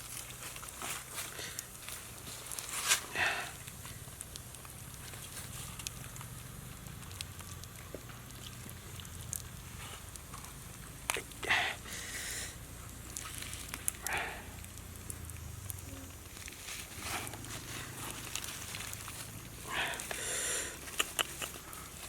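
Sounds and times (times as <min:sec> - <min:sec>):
rustling scrapes: 0:00.0 - 0:03.2, 0:16.3 - 0:20.1
fire crackling and popping: 0:00.0 - 0:22.0.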